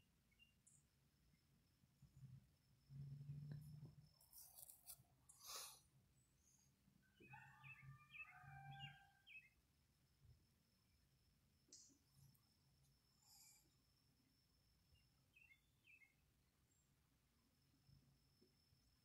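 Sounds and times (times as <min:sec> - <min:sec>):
bird chirping softly: 0:00.0 - 0:04.6, 0:06.2 - 0:09.6, 0:14.8 - 0:17.0.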